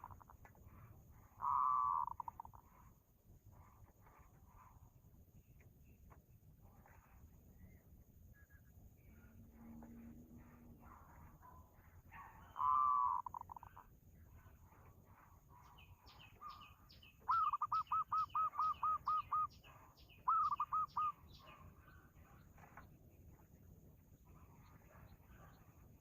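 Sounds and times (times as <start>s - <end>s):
bird calling: 0.0s - 3.0s, 10.4s - 22.9s
faint high chirps: 0.0s - 26.0s.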